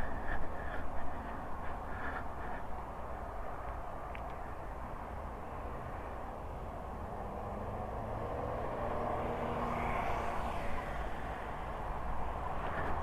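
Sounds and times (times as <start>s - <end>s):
vehicle passing close by: 6.8s - 13.0s.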